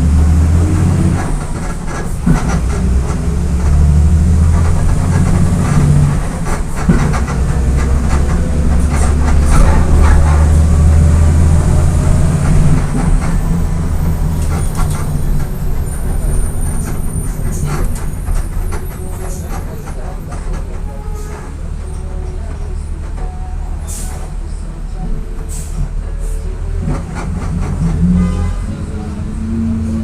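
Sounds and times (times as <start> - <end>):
bus diesel engine drone: 0.0 - 30.0
clatter of rattles: 1.2 - 23.3.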